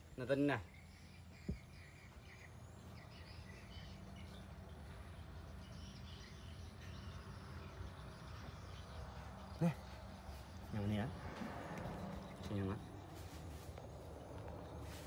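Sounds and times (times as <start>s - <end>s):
faint bird chirps: 0.0s - 10.8s.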